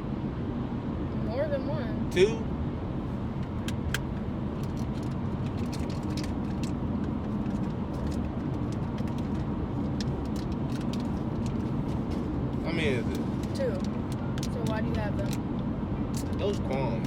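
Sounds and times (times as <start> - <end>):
car cabin rumble: 3.0 - 15.5.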